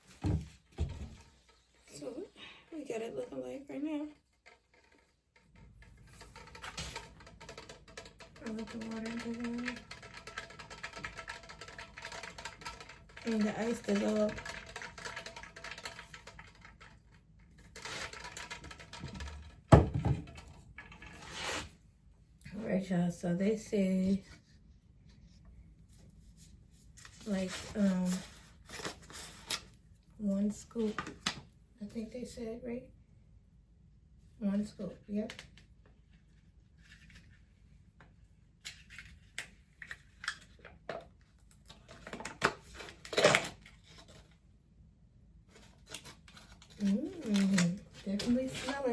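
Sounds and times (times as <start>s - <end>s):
small objects clicking and rustling: 4.3s - 21.1s, 45.5s - 48.9s.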